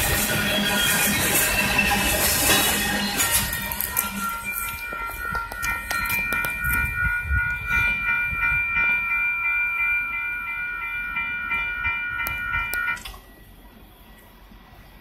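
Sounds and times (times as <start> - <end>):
steady high-pitched tone: 0.0 - 14.2
train wheel rumble: 0.0 - 15.0.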